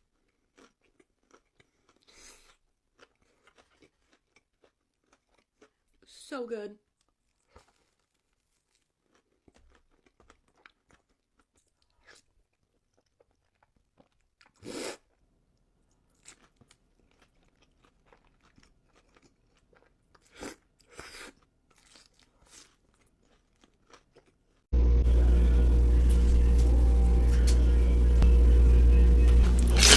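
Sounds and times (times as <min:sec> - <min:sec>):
crunchy bites and chewing: 0:00.0 - 0:06.0, 0:07.0 - 0:15.2, 0:16.1 - 0:24.7, 0:29.4 - 0:29.9.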